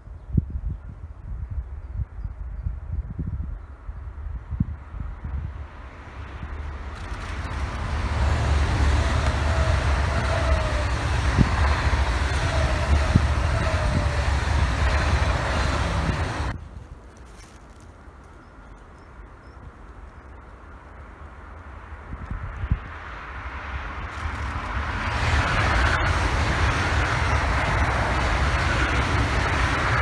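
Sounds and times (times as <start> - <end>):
outdoor background: 1.6 - 30.0
train passing rumble: 4.1 - 16.6, 22.8 - 30.0
faint sliding whines: 5.2 - 16.5, 24.1 - 30.0.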